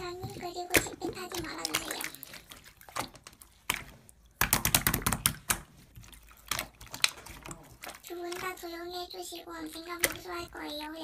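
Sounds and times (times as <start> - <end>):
irregular clicks and taps: 3.0 - 8.6.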